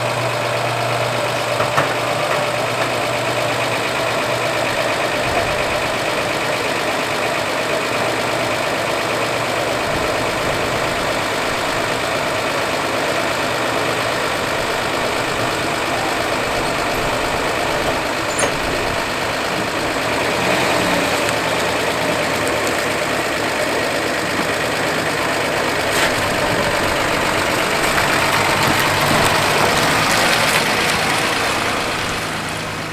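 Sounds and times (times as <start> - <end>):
car engine idling: 0.0 - 32.9.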